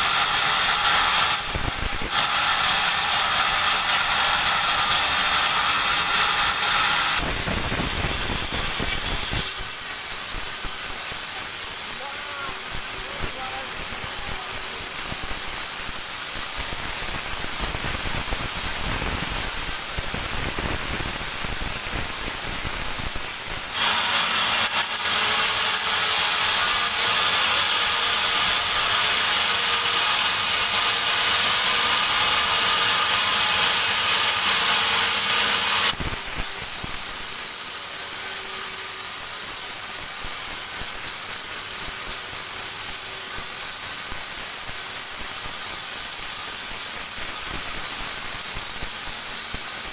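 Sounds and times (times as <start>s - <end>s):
band saw cutting log: 0.0s - 15.5s, 23.2s - 39.9s.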